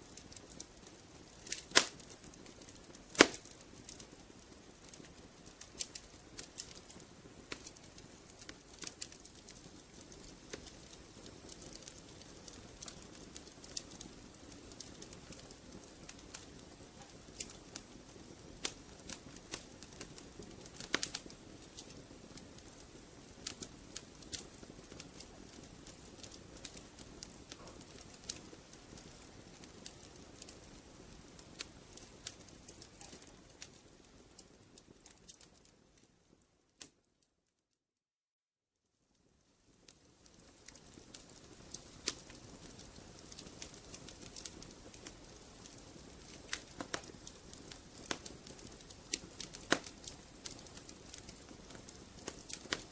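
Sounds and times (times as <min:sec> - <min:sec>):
rush of flames: 0:00.0 - 0:16.7
wood fire crackling and popping: 0:00.0 - 0:37.1, 0:39.2 - 0:52.9.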